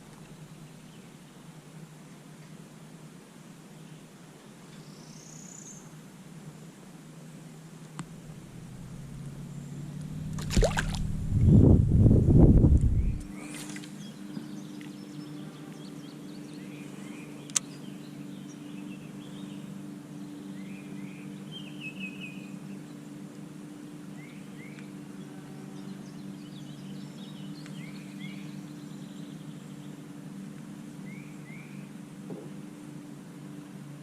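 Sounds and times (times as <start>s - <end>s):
steady low hum: 5.8s - 34.0s
small birds chirping: 12.6s - 23.2s, 24.0s - 30.2s.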